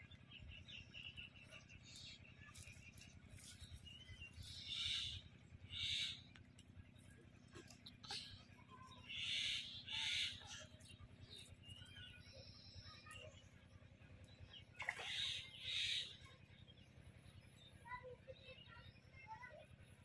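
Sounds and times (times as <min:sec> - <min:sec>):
bird hoarse calls: 0:04.3 - 0:06.3, 0:07.6 - 0:12.2, 0:14.6 - 0:16.3.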